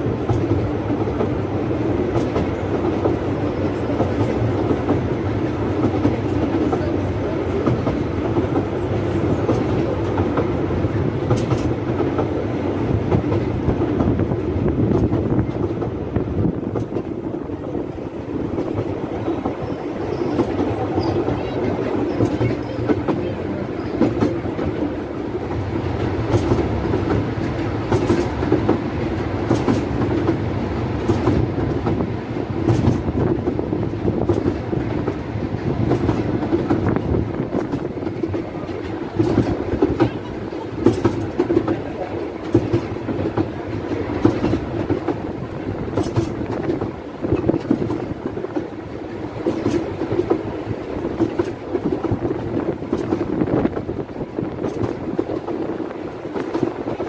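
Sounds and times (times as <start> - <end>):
wheels rumbling on rails: 0.0 - 57.0
clicks over rail joints: 29.4 - 30.4, 45.9 - 48.7.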